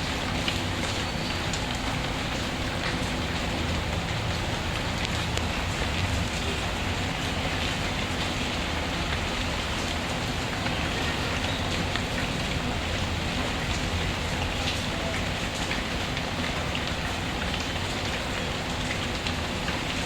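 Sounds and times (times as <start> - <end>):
steady rainfall: 0.0 - 20.0.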